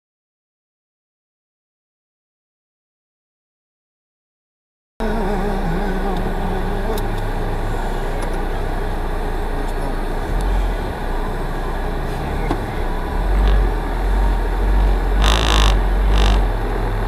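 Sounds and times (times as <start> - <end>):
car engine idling: 5.0 - 17.0.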